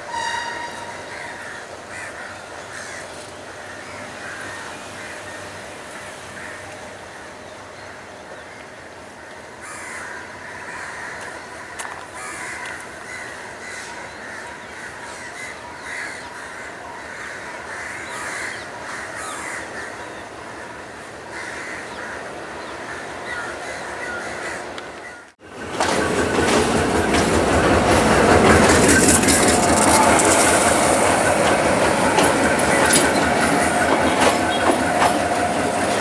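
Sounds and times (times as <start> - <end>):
birds calling: 0.6 - 25.4.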